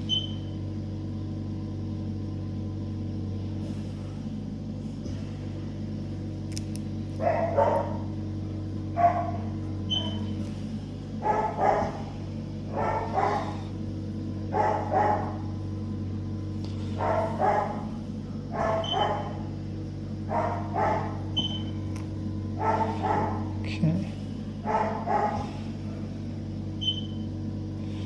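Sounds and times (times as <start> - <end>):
low hum: 0.0 - 28.0
dog barking: 7.2 - 8.2, 8.9 - 10.4, 11.2 - 13.8, 14.4 - 15.6, 16.8 - 19.6, 20.2 - 21.8, 22.5 - 23.6, 24.6 - 26.2.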